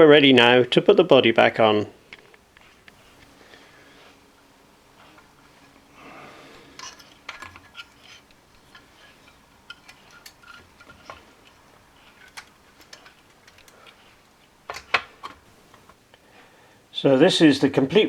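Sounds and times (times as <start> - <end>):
small parts clicking and tapping: 6.7 - 16.2.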